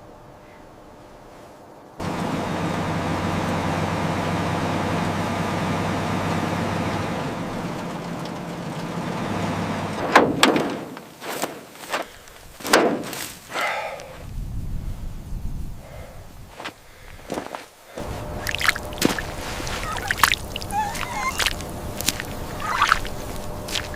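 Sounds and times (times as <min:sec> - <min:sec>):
engine-like hum with noisy wash: 0:02.0 - 0:10.2, 0:18.0 - 0:23.9.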